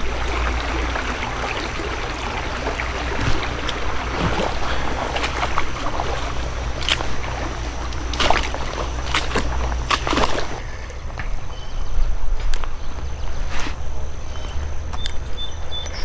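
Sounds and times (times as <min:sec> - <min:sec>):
sharp water splashes: 0:00.0 - 0:10.6
water sloshing around wading legs: 0:00.0 - 0:10.7.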